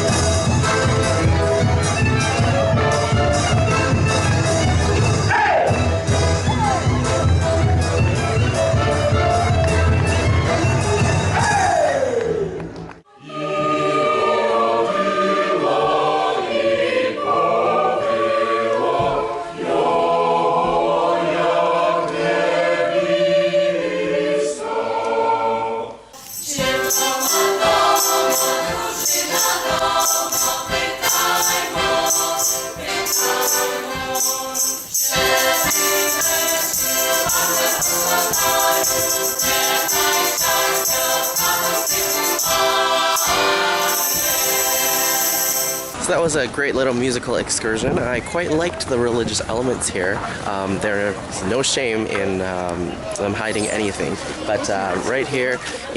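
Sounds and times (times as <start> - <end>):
choir singing: 13.1 - 46.0
bright jingling shimmer: 26.2 - 46.0.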